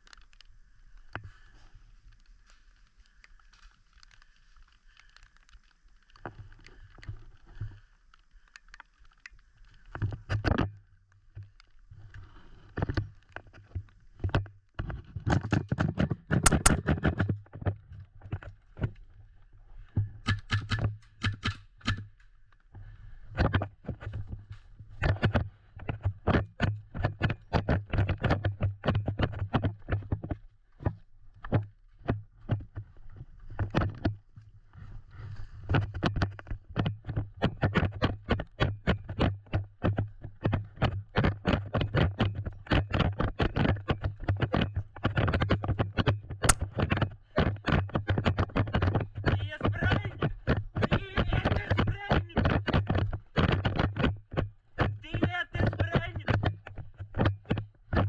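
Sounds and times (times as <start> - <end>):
clatter: 16.4 - 16.9.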